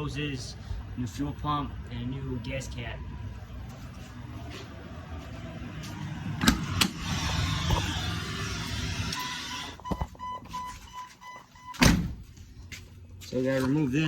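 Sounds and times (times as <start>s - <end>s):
car warning chime beeping: 9.1s - 11.8s.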